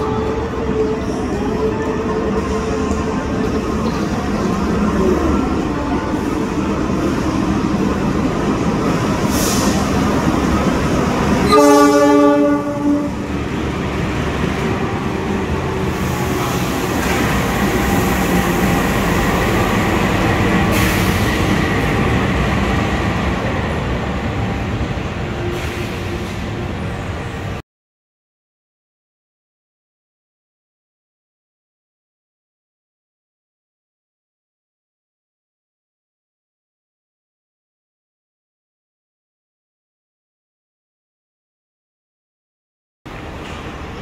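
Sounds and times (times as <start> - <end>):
diesel locomotive running: 0.0 - 27.6
train horn blast: 11.4 - 13.3.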